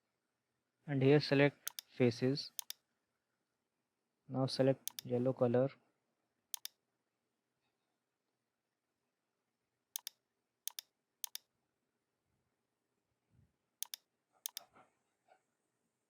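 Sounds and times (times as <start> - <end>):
computer mouse clicks: 1.7 - 1.9, 4.9 - 5.1, 6.6 - 6.8, 10.0 - 11.4, 13.8 - 14.7.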